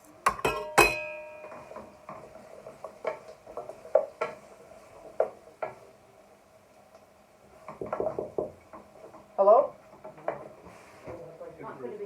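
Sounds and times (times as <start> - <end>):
spoon stirring spices in pan: 0.1 - 6.0
spoon knocking on metal pan: 0.3 - 2.2.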